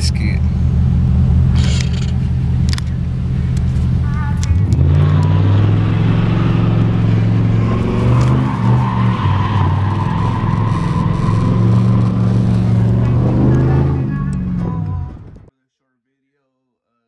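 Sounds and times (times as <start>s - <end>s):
engine revving high: 0.0s - 15.5s
tyres squealing: 4.0s - 15.5s.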